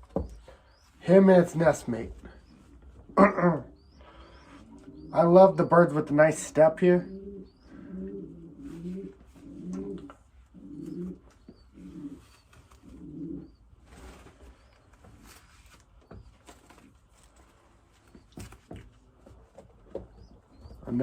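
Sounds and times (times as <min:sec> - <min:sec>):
pigeons cooing: 0:00.2 - 0:15.4.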